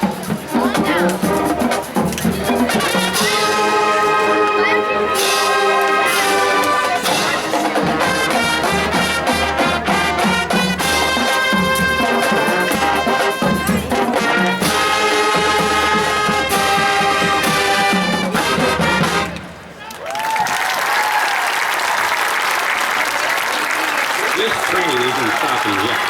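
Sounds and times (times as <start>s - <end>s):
marching drums: 0.0s - 19.4s
brass melody trumpets and trombones: 0.0s - 19.6s.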